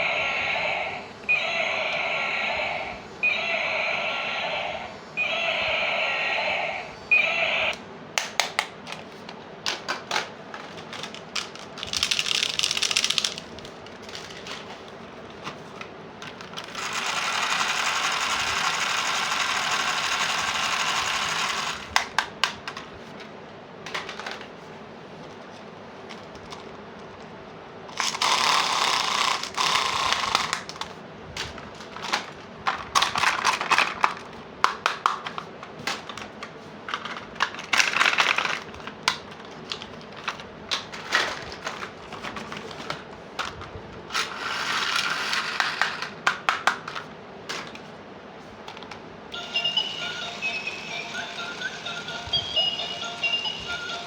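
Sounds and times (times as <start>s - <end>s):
plastic toy parts clicking: 9.7s - 13.5s.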